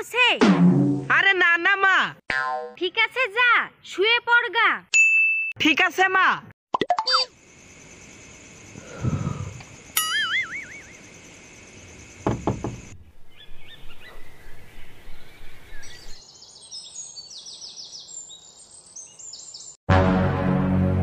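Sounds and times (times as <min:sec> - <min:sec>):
birds chirping: 0:07.4 - 0:19.8
soft knocks: 0:12.2 - 0:13.0.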